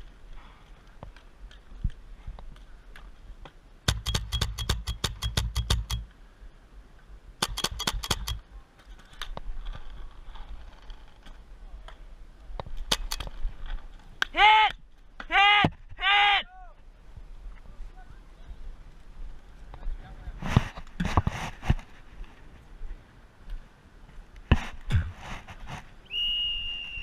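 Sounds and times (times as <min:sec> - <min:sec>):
paintball markers firing: 0:03.9 - 0:06.1, 0:07.4 - 0:08.4, 0:12.8 - 0:13.4.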